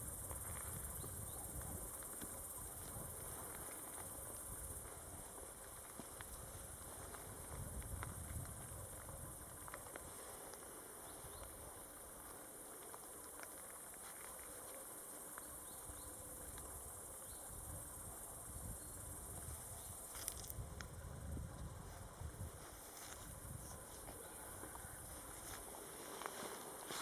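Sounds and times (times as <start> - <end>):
wind rumble on microphone: 0.0 - 5.4, 6.2 - 9.8, 16.6 - 23.8
insects hissing: 0.0 - 27.0
small ticks: 0.1 - 21.8.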